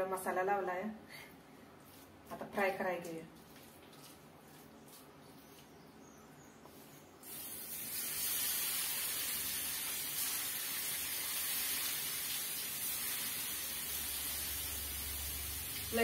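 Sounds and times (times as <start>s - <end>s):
prawns sizzling in hot oil: 7.2s - 16.0s.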